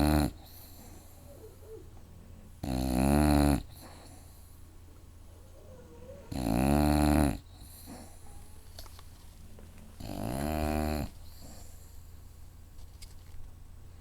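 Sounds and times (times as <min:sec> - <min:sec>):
dog snoring: 0:00.0 - 0:01.2, 0:02.6 - 0:04.2, 0:06.3 - 0:08.2, 0:10.0 - 0:11.7
dog breathing: 0:00.0 - 0:01.8, 0:07.3 - 0:08.5, 0:10.0 - 0:12.4.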